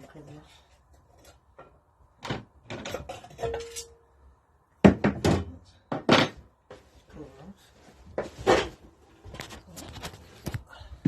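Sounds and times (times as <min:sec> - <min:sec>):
metal clanks and knocks: 0:01.2 - 0:04.0.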